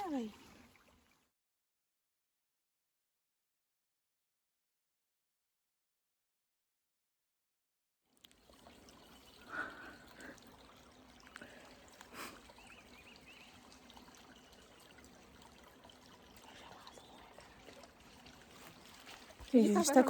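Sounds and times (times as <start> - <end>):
faint stream trickling: 0.0 - 1.3, 8.1 - 20.0.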